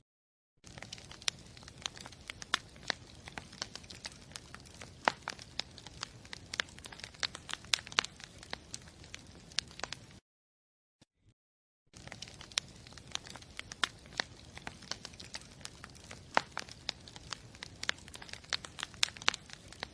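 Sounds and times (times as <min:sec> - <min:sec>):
campfire crackling and popping: 0:00.6 - 0:10.2, 0:11.9 - 0:19.9.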